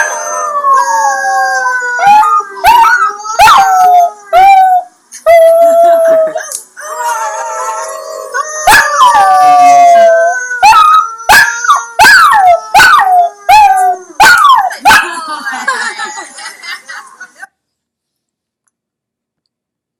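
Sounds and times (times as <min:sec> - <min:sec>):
canines howling: 0:05.4 - 0:14.5.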